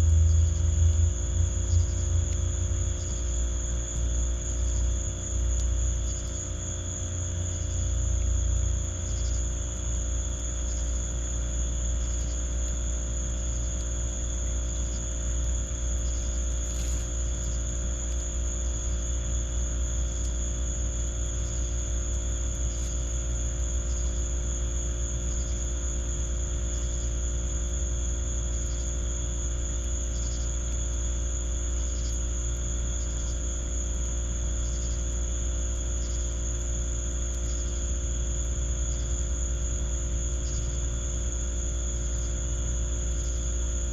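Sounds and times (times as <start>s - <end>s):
steady low rumble: 0.0s - 27.0s
crickets trilling: 0.0s - 43.9s
faint insect chirp: 0.0s - 43.9s.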